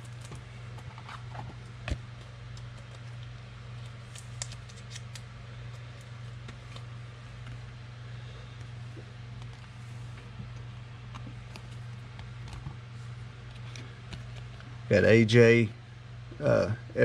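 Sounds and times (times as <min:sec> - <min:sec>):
low electrical hum: 0:00.0 - 0:17.0
trading cards clicking and sliding: 0:03.8 - 0:07.6, 0:13.4 - 0:14.7.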